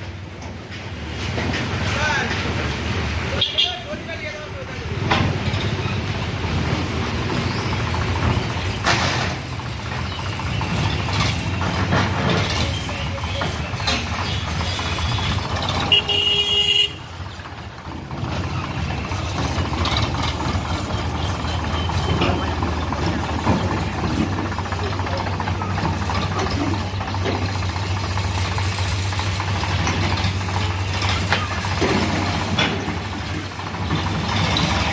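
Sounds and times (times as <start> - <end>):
heavy diesel engines rumbling: 0.0 - 34.9
horn toot: 15.8 - 17.1.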